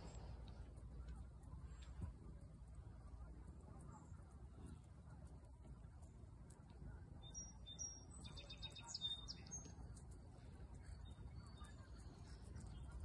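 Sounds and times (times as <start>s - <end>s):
low steady rumble: 0.0s - 13.0s
bird chirps: 7.2s - 10.0s, 10.8s - 13.0s.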